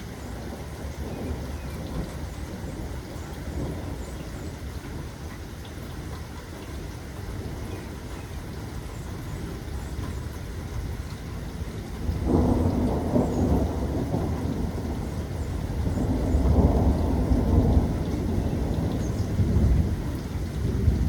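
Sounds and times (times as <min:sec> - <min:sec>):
thunder rumbling: 0:00.0 - 0:04.2, 0:10.8 - 0:21.0
rain falling: 0:00.0 - 0:21.0.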